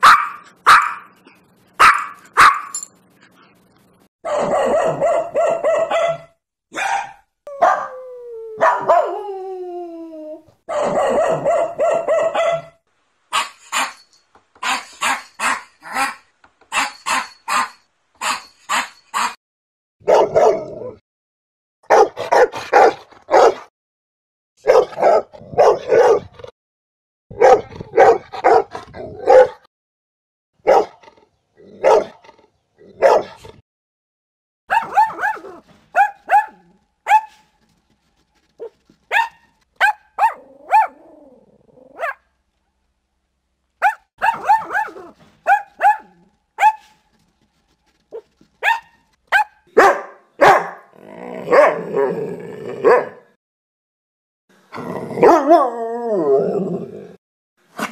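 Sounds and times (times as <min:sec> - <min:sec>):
higher-pitched sharp dog barks: 0:00.0 - 0:01.1, 0:01.8 - 0:02.8, 0:04.2 - 0:07.9, 0:08.6 - 0:09.1, 0:10.7 - 0:14.0, 0:14.6 - 0:19.4, 0:20.0 - 0:20.6, 0:21.8 - 0:23.7, 0:24.6 - 0:26.3, 0:27.3 - 0:29.7, 0:30.6 - 0:31.0, 0:31.8 - 0:32.1, 0:33.0 - 0:33.4, 0:34.7 - 0:37.4, 0:39.1 - 0:41.0, 0:42.0 - 0:42.2, 0:43.8 - 0:47.0, 0:48.6 - 0:50.9, 0:51.5 - 0:51.8, 0:52.8 - 0:53.2, 0:55.2 - 0:55.6
deep dog barks: 0:04.2 - 0:07.9, 0:08.6 - 0:09.1, 0:20.0 - 0:20.7, 0:21.8 - 0:23.7, 0:24.6 - 0:26.4, 0:27.3 - 0:29.7, 0:30.6 - 0:31.0, 0:31.8 - 0:32.2, 0:33.0 - 0:33.5, 0:43.8 - 0:47.0, 0:48.1 - 0:52.0, 0:52.8 - 0:53.3, 0:55.2 - 0:55.6.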